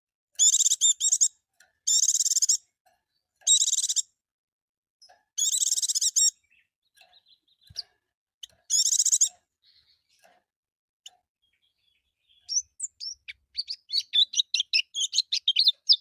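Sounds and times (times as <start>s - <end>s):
bird warbling: 12.5s - 16.0s.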